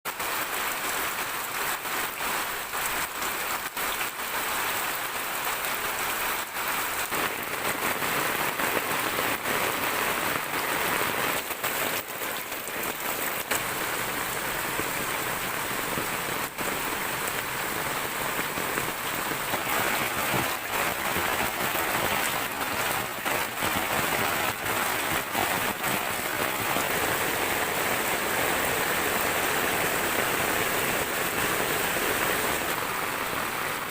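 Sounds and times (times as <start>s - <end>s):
steady rain falling: 0.1s - 33.9s
raindrop hits: 5.4s - 32.6s.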